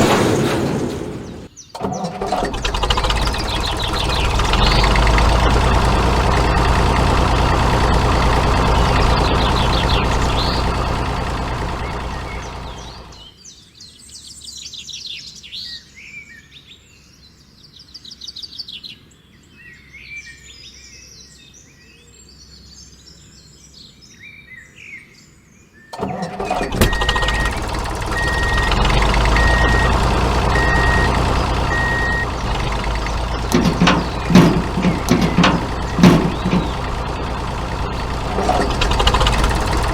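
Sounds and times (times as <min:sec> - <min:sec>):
birds chirping: 0:01.1 - 0:13.6, 0:26.0 - 0:39.9
vehicle motor running: 0:01.2 - 0:13.3, 0:26.0 - 0:39.9
reversing beeps: 0:26.8 - 0:32.3.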